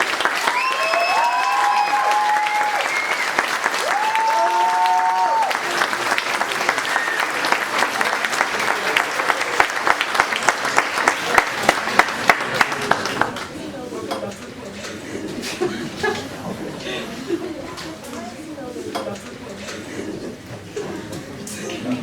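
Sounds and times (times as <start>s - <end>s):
people cheering: 0.0s - 13.4s
audience applauding: 0.0s - 13.6s.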